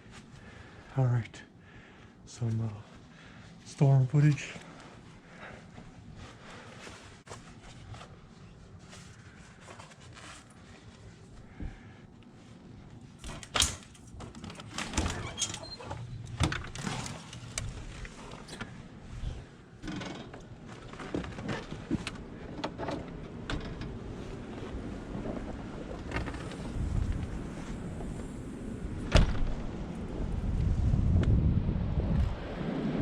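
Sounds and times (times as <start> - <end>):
wind buffeting microphone: 24.0 - 33.0.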